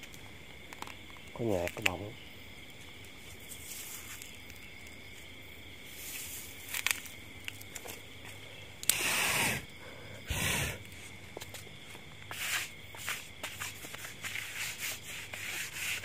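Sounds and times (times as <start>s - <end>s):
night insects chirring: 0.0s - 16.0s
short scraping noises: 12.3s - 16.0s.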